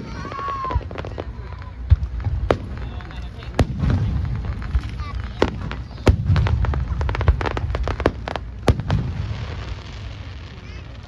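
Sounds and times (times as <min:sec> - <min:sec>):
fireworks booming: 0:00.0 - 0:11.0
fireworks cracks and bangs: 0:00.0 - 0:11.0.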